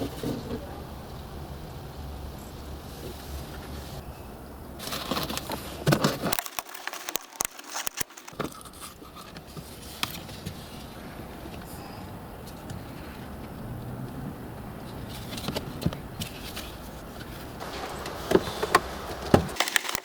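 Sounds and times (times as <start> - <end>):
plastic trim scraping and clicking: 5.2 - 10.3.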